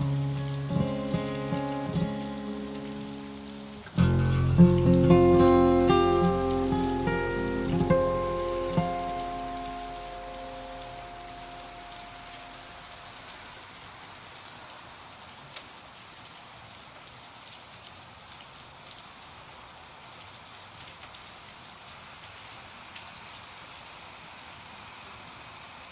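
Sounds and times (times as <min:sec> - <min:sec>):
steady hiss: 0:00.0 - 0:16.7.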